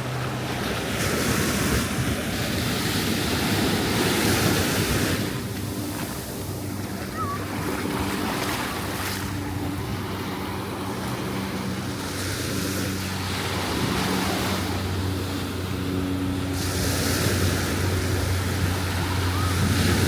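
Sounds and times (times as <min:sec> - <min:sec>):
low steady drone: 0:00.0 - 0:20.0
ocean surf washing onto beach: 0:00.0 - 0:20.0
wind buffeting microphone: 0:00.0 - 0:20.0.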